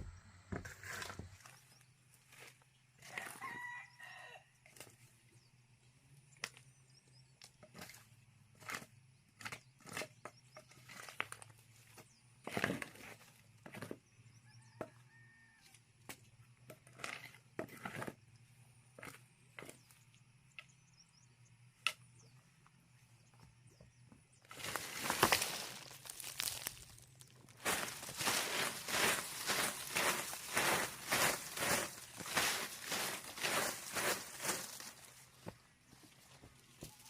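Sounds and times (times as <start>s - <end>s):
rooster crowing: 3.1s - 4.4s.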